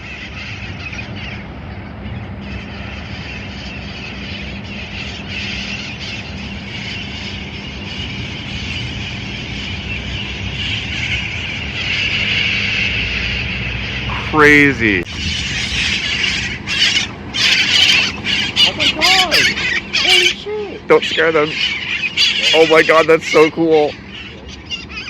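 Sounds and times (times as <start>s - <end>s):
parrots squawking and chattering: 0.0s - 25.0s
steady low hum: 0.0s - 25.0s.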